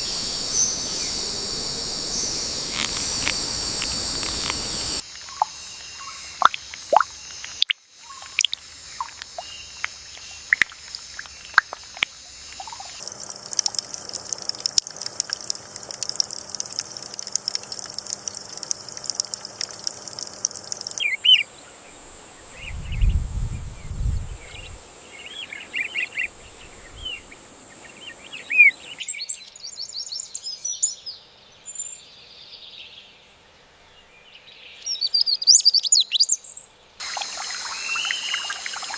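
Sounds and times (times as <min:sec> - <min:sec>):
high-pitched insect buzzing: 0:00.0 - 0:21.4.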